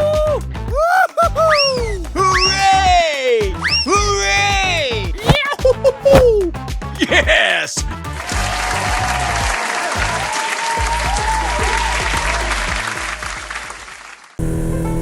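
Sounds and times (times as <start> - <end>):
music: 0.0 - 13.7, 14.4 - 15.0
whistles: 0.7 - 4.1
applause and cheering: 6.4 - 14.4.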